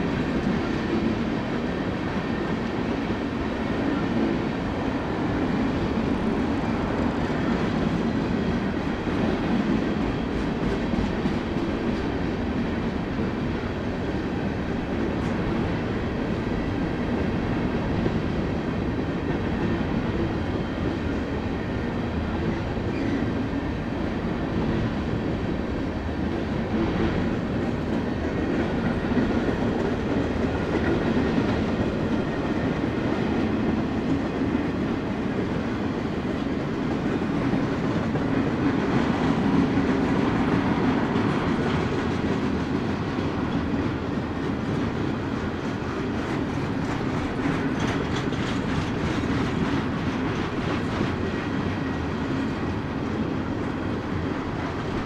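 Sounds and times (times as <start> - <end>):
freight train wheels rumbling: 0.0 - 55.0
wheels clacking over rail joints: 44.4 - 53.3.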